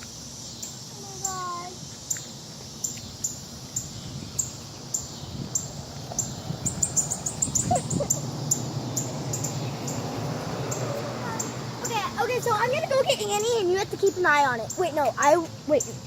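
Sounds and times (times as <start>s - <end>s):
baby bird chirping: 3.8s - 10.0s, 10.7s - 12.3s.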